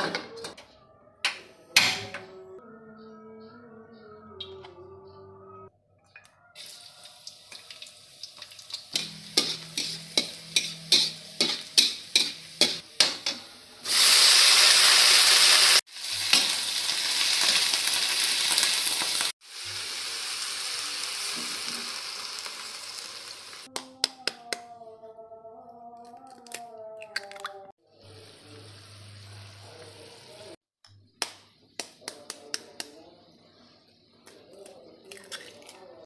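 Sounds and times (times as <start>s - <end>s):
vegetables sizzling in hot oil: 6.6s - 12.9s, 13.8s - 23.7s, 28.2s - 30.4s.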